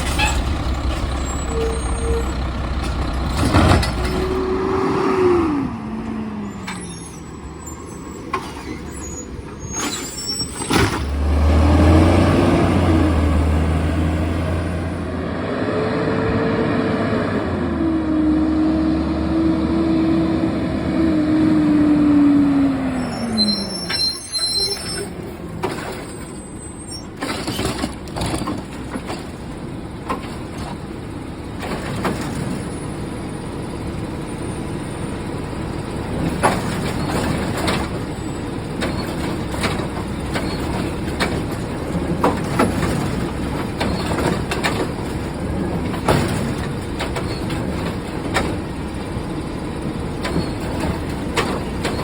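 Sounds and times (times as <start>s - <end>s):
garbage truck clanks and knocks: 0.0s - 4.7s, 8.2s - 14.5s, 24.7s - 52.0s
garbage truck whine: 0.0s - 52.0s.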